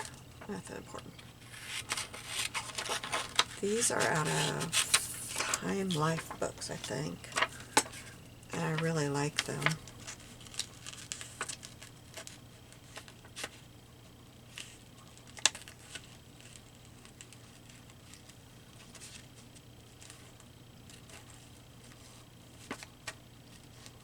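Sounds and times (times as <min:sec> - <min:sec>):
faint steady hum: 0:00.0 - 0:24.0
paper rustling: 0:01.1 - 0:13.6.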